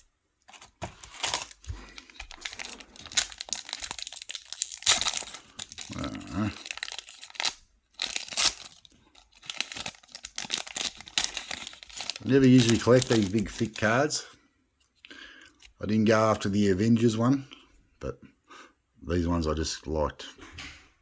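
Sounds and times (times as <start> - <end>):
wrapper crinkling and tearing: 0.0 - 14.2.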